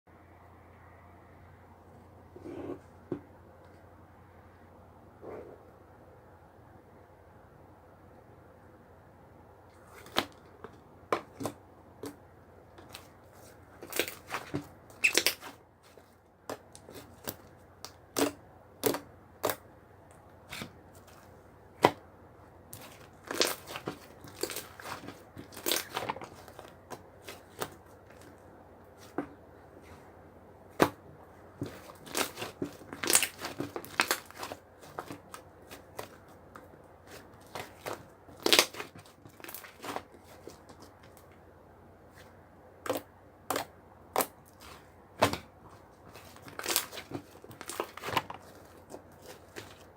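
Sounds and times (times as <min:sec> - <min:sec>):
crinkling rustling handling noises: 0:12.8 - 0:19.6, 0:20.2 - 0:22.0, 0:22.7 - 0:41.4, 0:42.0 - 0:49.9.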